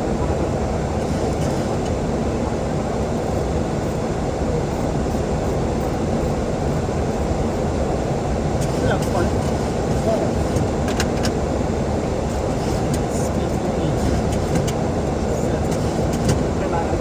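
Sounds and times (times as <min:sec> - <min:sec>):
cockpit airflow and engine noise: 0:00.0 - 0:17.0.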